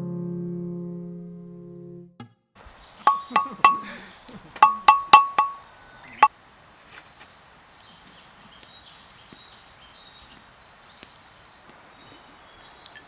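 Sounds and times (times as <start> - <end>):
faint high chirps: 2.7 - 6.3, 7.6 - 13.0
metallic knock on kettle: 3.1 - 3.9, 4.6 - 5.6.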